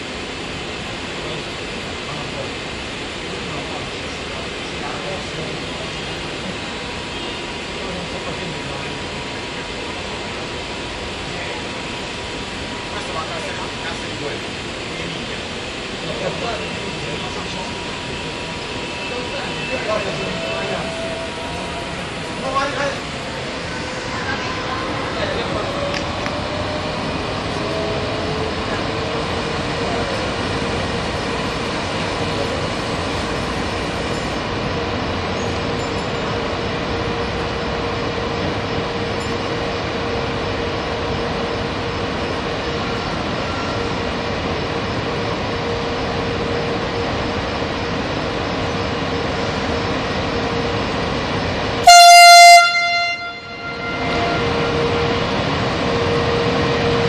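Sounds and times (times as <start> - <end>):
electric locomotive humming and whining: 0.0 - 57.0
train horn blast: 19.0 - 22.1, 51.8 - 55.0.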